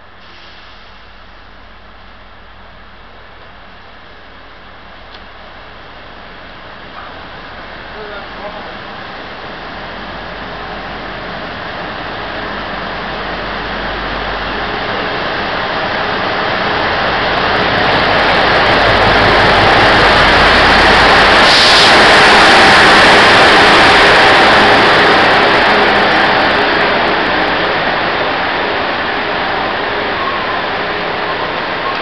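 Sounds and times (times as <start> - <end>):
diesel locomotive engine rumble: 0.0 - 32.0
brief hiss: 0.2 - 1.2, 21.4 - 22.0
train wheels rumbling on rails: 0.4 - 32.0.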